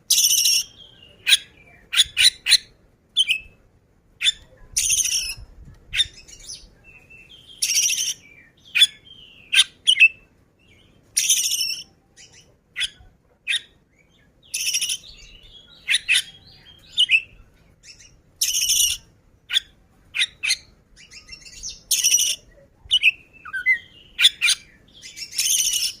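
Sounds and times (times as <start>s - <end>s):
bird singing: 0.0s - 3.6s, 6.0s - 26.0s.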